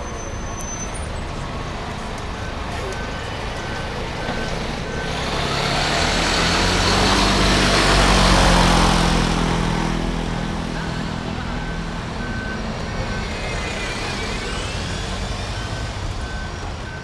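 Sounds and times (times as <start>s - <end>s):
faint steady beeping: 0.0s - 5.7s
heavy vehicle passing: 1.0s - 17.0s.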